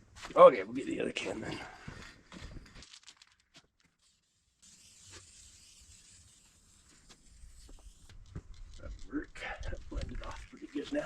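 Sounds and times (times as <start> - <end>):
spray can hissing: 4.6 - 8.1.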